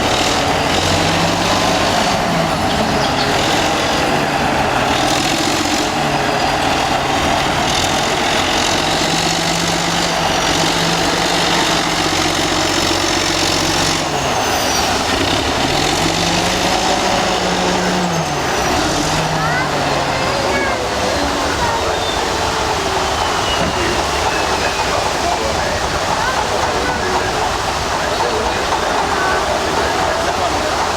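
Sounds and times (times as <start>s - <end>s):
bulldozer diesel engine running: 0.0s - 30.9s.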